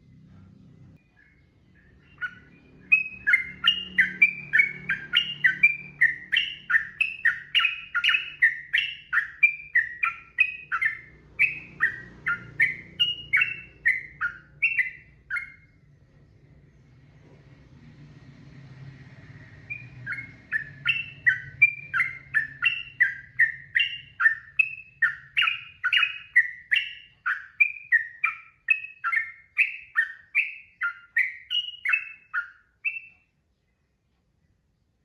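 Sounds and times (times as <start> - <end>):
bulbul singing whistled notes: 1.0 - 15.8, 19.4 - 33.3.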